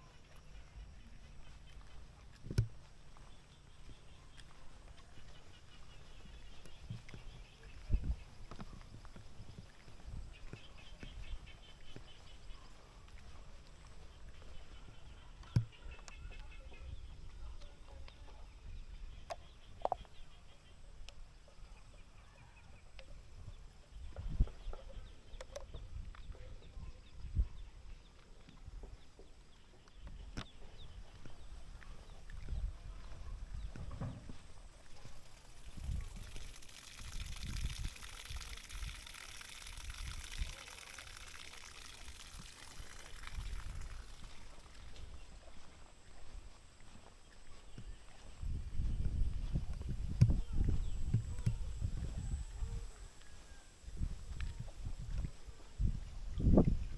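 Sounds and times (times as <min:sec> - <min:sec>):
running water splashing: 0:34.6 - 0:48.3.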